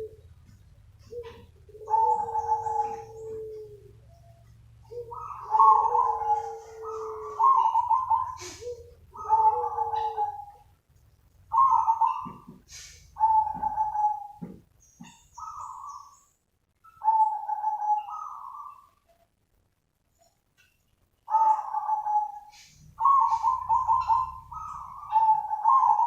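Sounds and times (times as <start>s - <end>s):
dove cooing: 0.0s - 10.8s, 11.5s - 19.1s, 21.2s - 26.0s.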